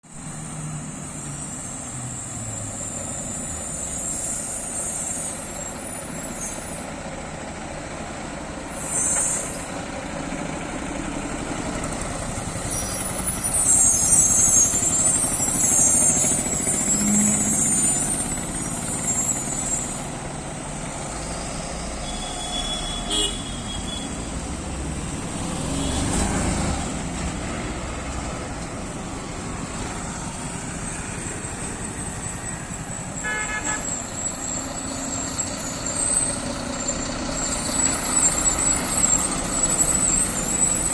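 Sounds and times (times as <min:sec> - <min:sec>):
heavy truck traffic: 0:00.0 - 0:40.9
horn toots: 0:22.0 - 0:24.2, 0:33.2 - 0:34.0.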